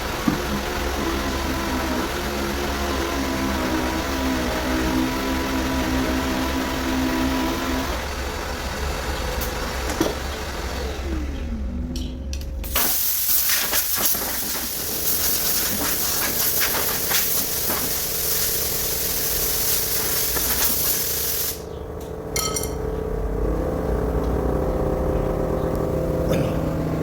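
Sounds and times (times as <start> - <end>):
low machine hum: 0.0 - 12.8, 21.6 - 27.0
pneumatic tool air hissing: 12.6 - 21.7.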